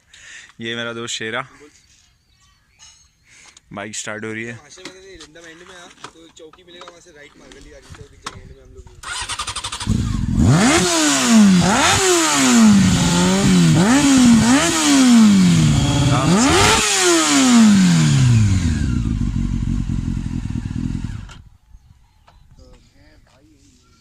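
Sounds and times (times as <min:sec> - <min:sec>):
motorcycle engine revving: 0:09.0 - 0:21.5.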